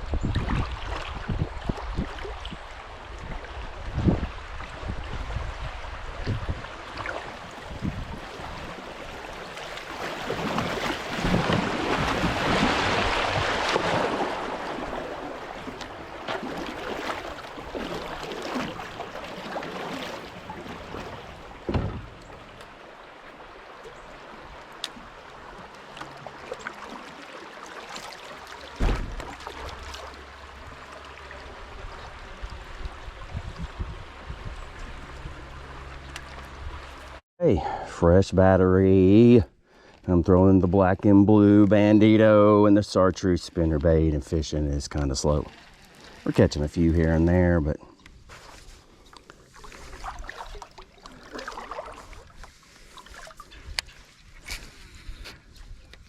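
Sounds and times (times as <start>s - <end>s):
creek water rushing and splashing: 0.0s - 37.2s, 48.6s - 55.0s
sharp knocks: 21.7s - 22.2s.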